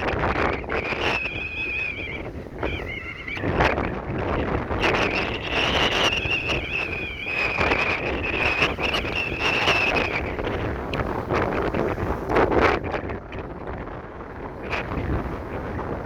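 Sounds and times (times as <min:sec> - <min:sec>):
wind buffeting microphone: 0:00.0 - 0:16.0
high steady whistle: 0:00.6 - 0:03.4, 0:04.8 - 0:10.3.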